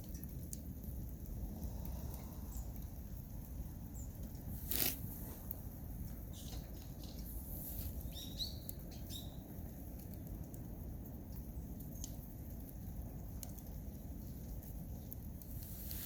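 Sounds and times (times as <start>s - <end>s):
fire crackling: 0.0s - 16.0s
wood fire rumbling: 0.0s - 16.0s
bird chirps: 8.0s - 9.4s.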